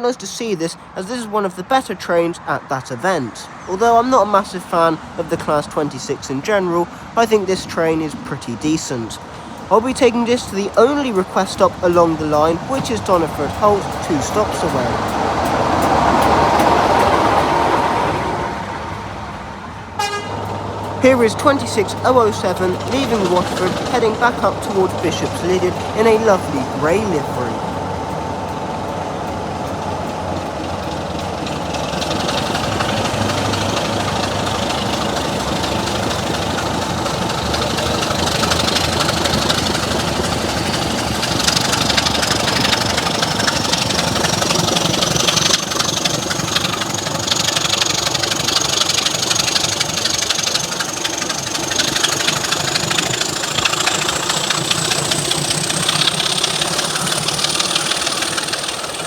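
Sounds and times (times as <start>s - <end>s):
locomotive diesel engine under load: 0.0s - 59.0s
high whine rising in pitch: 29.7s - 59.0s.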